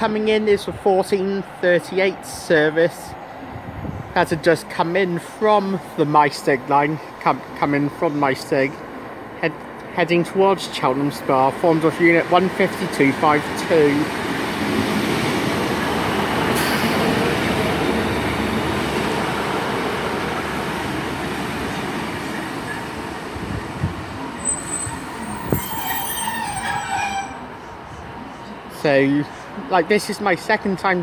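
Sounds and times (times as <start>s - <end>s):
diesel train arriving: 0.0s - 29.9s
brakes squealing: 16.5s - 17.2s, 24.3s - 27.7s.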